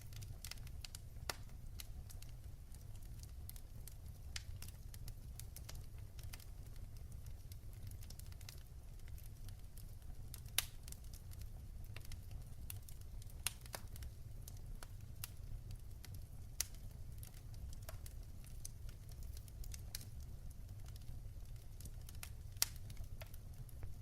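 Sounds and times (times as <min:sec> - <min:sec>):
fireplace fire crackling: 0:00.0 - 0:24.0.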